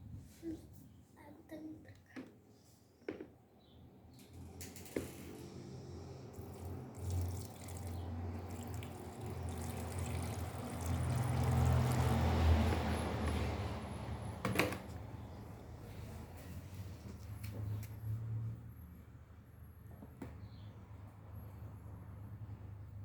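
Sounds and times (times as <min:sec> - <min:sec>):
water running in washing machine: 0:06.4 - 0:13.0.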